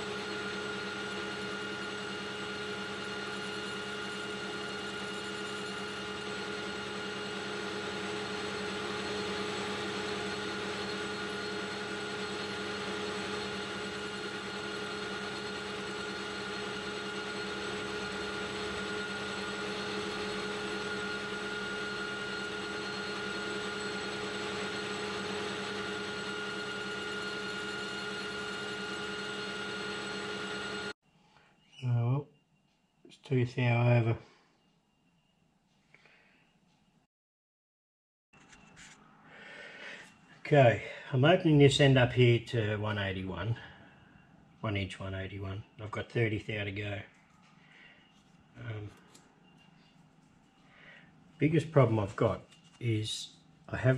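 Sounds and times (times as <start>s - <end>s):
metal lathe whirring: 0.0s - 31.0s.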